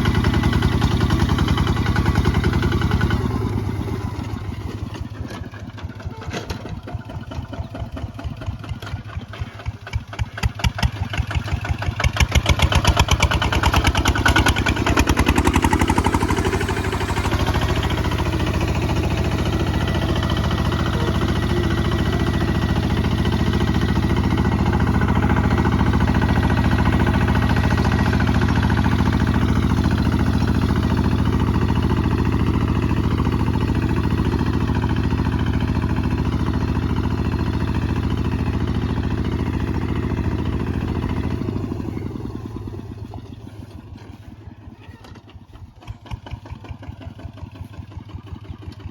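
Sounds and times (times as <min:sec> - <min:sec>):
diesel engine chugging: 0:00.0 - 0:48.9.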